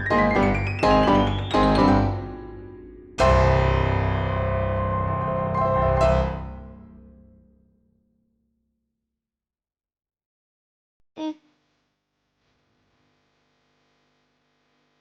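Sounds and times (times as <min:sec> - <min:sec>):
piano music: 0:00.0 - 0:07.2.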